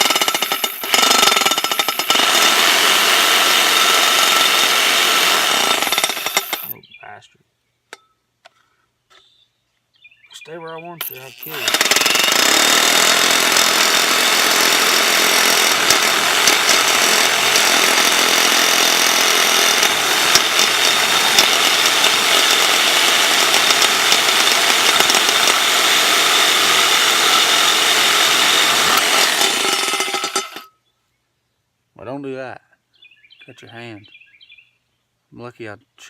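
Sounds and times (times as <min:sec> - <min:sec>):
power saw cutting metal pipe: 0:00.0 - 0:06.7, 0:11.0 - 0:30.7.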